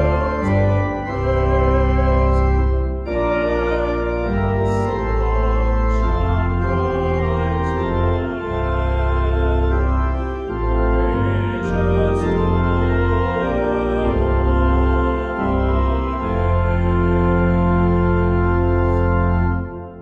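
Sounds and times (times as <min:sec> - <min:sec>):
organ playing a hymn: 0:00.0 - 0:20.0.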